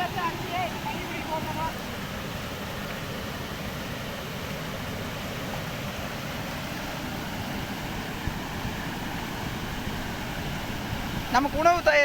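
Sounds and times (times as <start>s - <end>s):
river water rushing over weir: 0.0s - 12.0s
wind buffeting microphone: 6.9s - 12.0s.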